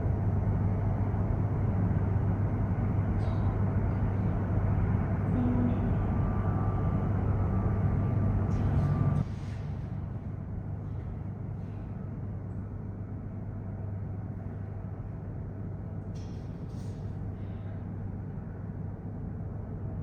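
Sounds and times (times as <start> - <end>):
vehicle rumble in motion: 0.0 - 13.6.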